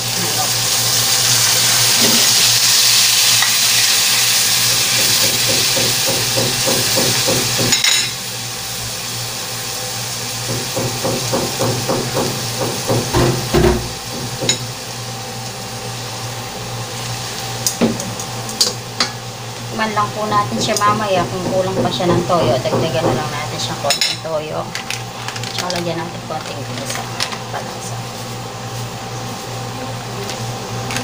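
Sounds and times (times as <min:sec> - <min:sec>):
marinade sizzling in hot oil: 0:00.0 - 0:25.5.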